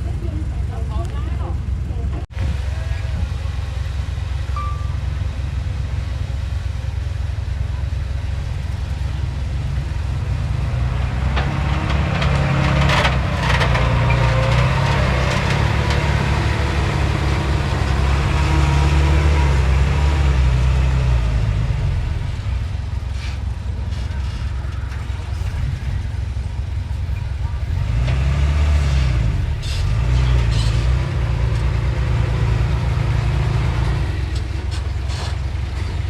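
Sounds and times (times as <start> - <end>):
heavy machine diesel engine: 0.0 - 36.0
metal clanks and scraping: 10.4 - 18.9, 29.2 - 32.6, 33.5 - 36.0.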